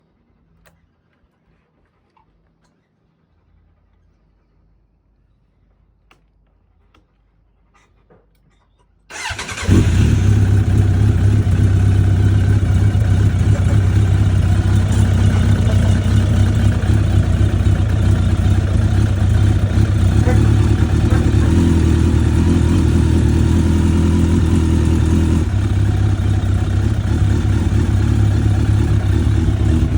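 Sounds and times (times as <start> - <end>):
motorcycle engine starting and idling: 9.1 - 29.9.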